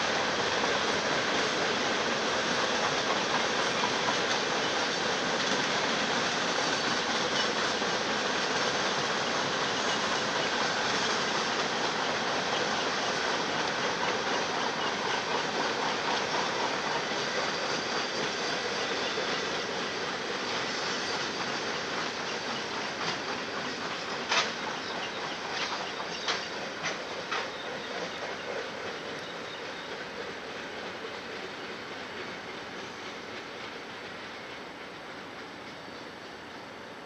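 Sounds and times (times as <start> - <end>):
freight train wheels rolling: 0.0 - 37.0.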